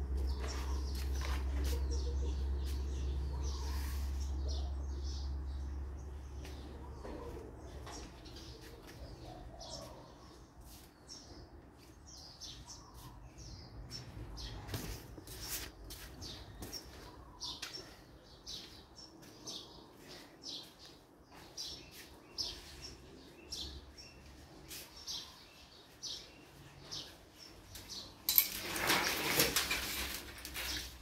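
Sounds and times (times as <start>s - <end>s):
small birds chirping: 0.0s - 28.3s.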